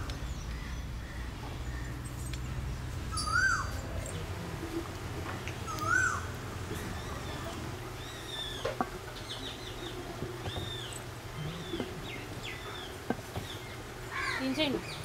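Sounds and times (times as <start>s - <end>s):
bird calling: 3.1s - 4.2s, 5.6s - 15.0s.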